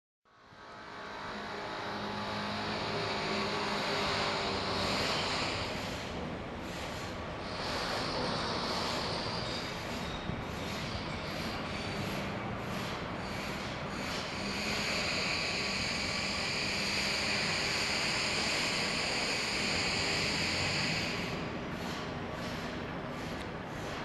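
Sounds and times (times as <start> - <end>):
city noise: 0.3 - 24.0
train wheel squeal: 0.4 - 24.0.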